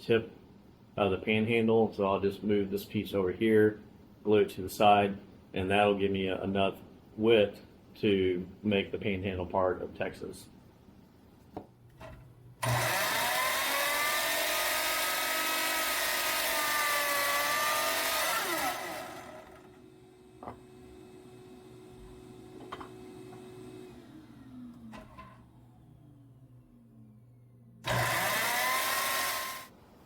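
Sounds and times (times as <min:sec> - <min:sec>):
electric power saw cutting wood: 0:12.6 - 0:19.8, 0:27.8 - 0:29.7.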